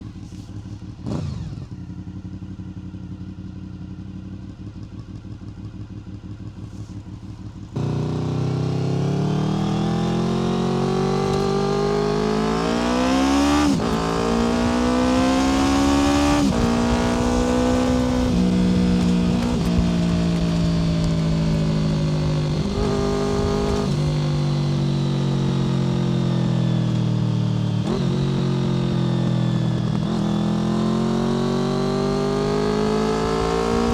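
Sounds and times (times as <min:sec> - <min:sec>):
motorcycle engine idling: 0:00.0 - 0:08.1
motorcycle accelerating through gears: 0:00.0 - 0:33.9.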